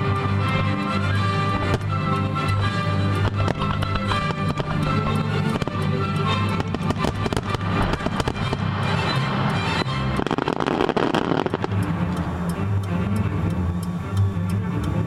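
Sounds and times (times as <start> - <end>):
music: 0.0 - 15.0
fireworks popping and crackling: 3.1 - 11.8.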